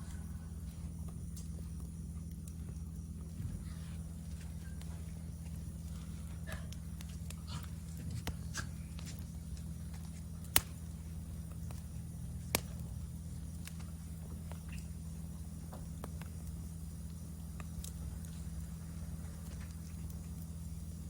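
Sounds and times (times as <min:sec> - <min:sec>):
low steady hum: 0:00.0 - 0:21.0
wood fire crackling: 0:00.0 - 0:21.0
sharp cracks of fire: 0:05.6 - 0:20.6.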